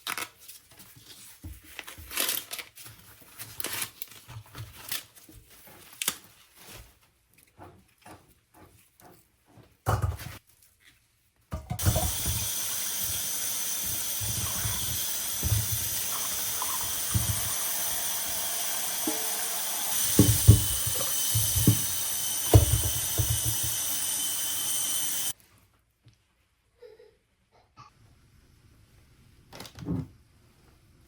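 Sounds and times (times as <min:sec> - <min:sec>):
things knocking in sink: 0:11.5 - 0:13.2, 0:13.8 - 0:18.0, 0:19.0 - 0:24.0
water running from tap into sink: 0:11.8 - 0:25.4.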